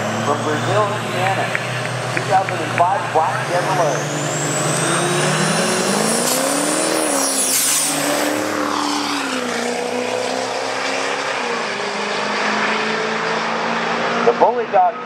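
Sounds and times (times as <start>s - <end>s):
diesel truck engines racing: 0.0s - 15.0s
high turbo whistle: 3.3s - 9.7s.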